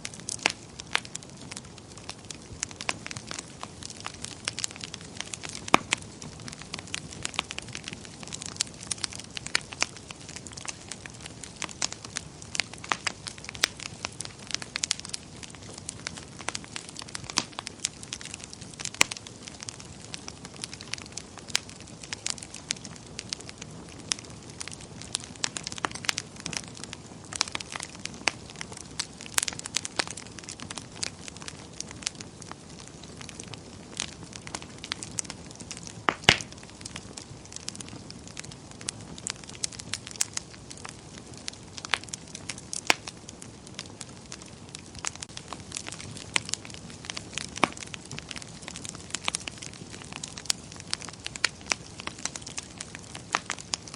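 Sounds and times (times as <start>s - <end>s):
low steady hiss: 0.0s - 53.9s
wood fire crackling and popping: 0.0s - 53.9s.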